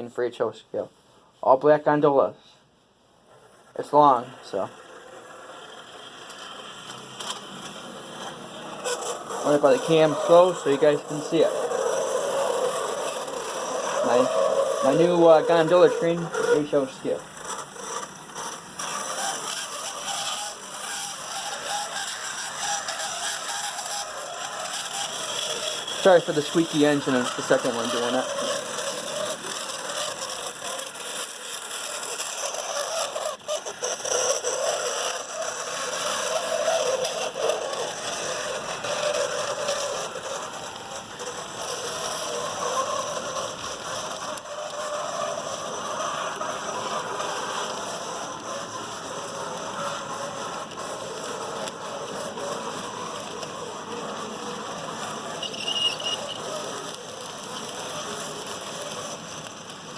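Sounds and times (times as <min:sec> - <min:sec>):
model train whirring rattle: 0:03.3 - 0:59.9
locomotive squeal: 0:24.7 - 0:29.4, 0:55.4 - 0:56.5.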